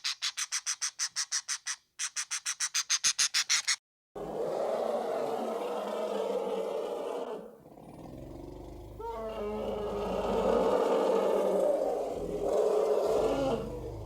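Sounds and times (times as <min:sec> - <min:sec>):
large animal calling loudly: 0:09.0 - 0:14.0.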